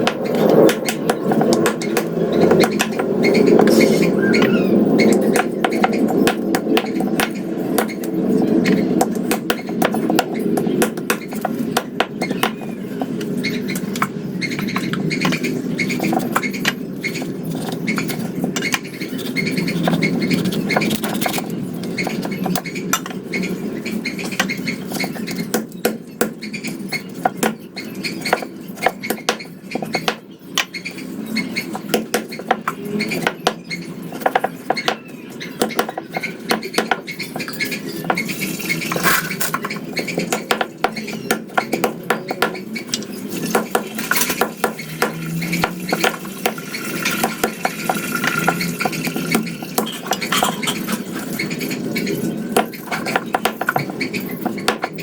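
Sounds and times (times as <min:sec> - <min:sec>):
utensils and dishes clinking: 0:32.4 - 0:55.0.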